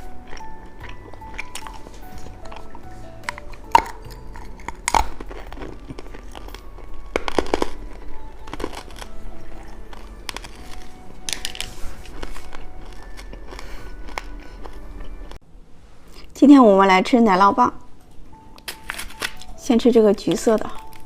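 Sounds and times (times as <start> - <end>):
plastic wrappers crinkling: 0.0 - 14.8, 18.6 - 21.0
quiet background music: 0.0 - 21.0.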